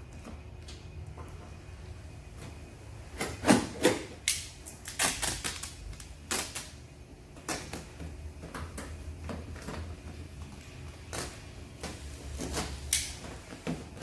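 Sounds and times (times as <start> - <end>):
duct tape ripping: 4.8 - 6.7.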